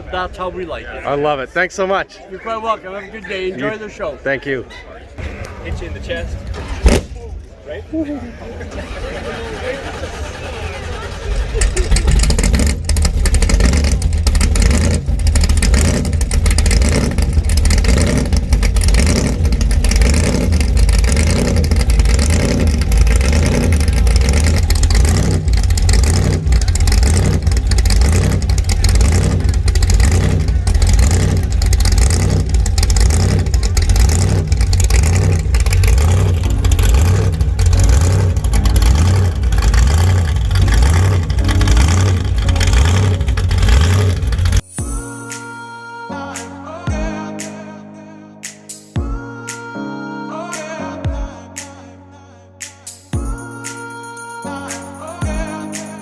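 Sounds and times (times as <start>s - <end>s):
loud car engine rumbling: 5.0s - 44.8s.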